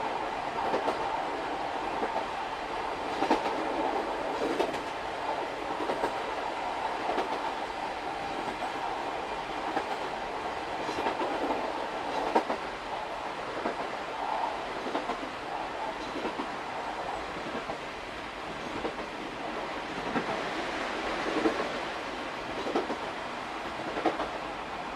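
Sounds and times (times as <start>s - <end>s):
train running rumble: 0.0s - 24.9s
rail-joint clicks: 0.6s - 1.1s, 3.0s - 5.0s, 5.7s - 6.3s, 9.6s - 10.2s, 10.8s - 12.7s, 13.5s - 16.6s, 18.6s - 20.5s, 21.1s - 21.8s, 22.5s - 24.4s.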